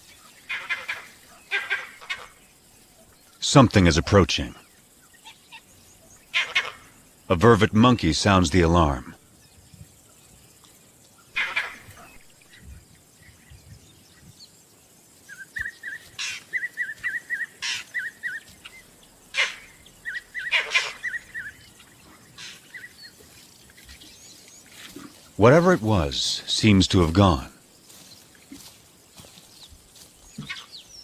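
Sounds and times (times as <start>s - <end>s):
monkey alarm calls: 0.4s - 2.4s, 5.1s - 6.9s, 11.2s - 12.7s, 15.3s - 23.2s.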